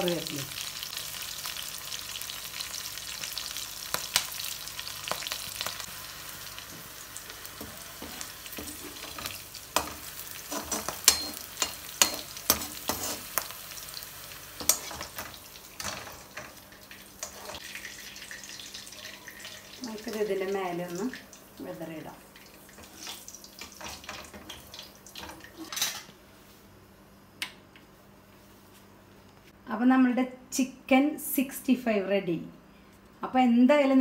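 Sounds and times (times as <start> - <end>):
food sizzling in hot oil: 0.0 - 25.7.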